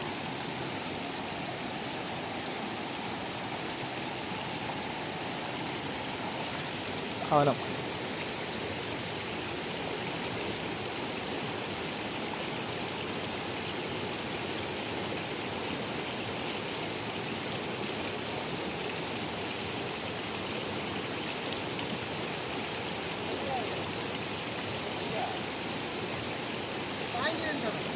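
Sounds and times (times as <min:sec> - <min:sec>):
rushing water: 0:00.0 - 0:27.9.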